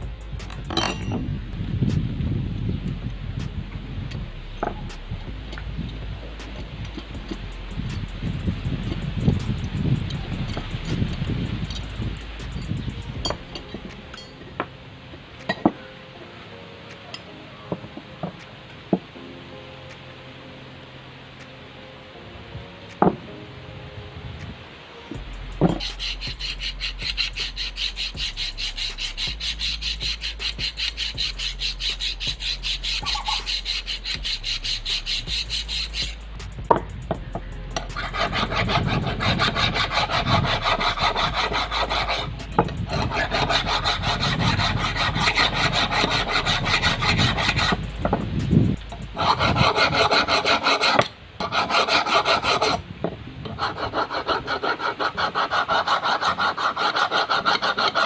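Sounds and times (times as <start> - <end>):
abrasive scrubbing on steel: 25.4 - 52.8, 53.5 - 58.0.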